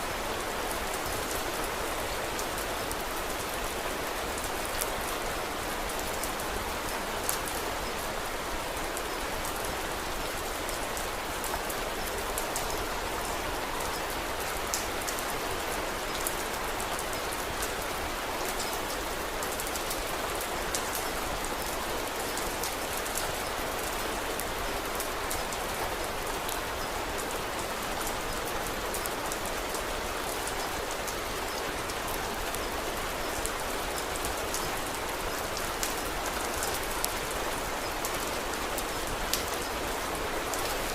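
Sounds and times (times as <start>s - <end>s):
steady rainfall hiss: 0.0s - 40.9s.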